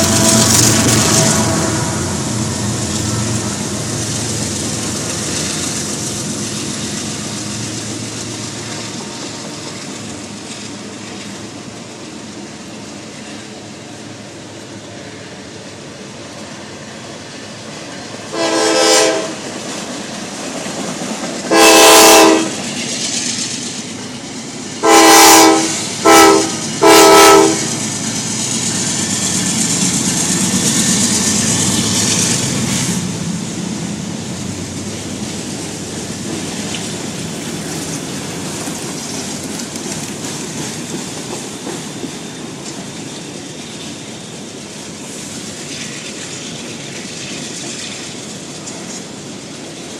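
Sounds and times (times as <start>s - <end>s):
diesel locomotive horn blasts: 0.0s - 4.4s, 18.3s - 19.5s, 21.5s - 22.6s, 24.8s - 28.0s
freight train rumbling past: 0.0s - 49.9s
wheels clicking over rail joints: 27.6s - 49.9s.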